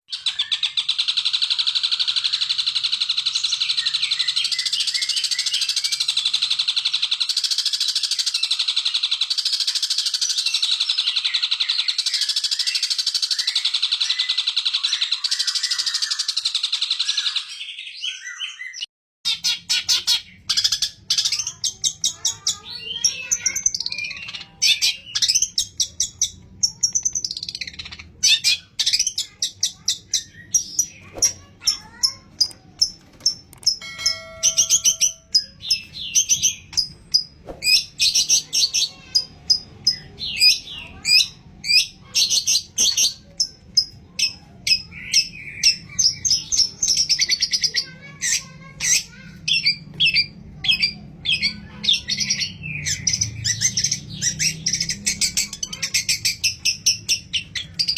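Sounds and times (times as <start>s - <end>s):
shrike chattering song: 19.2s - 57.9s.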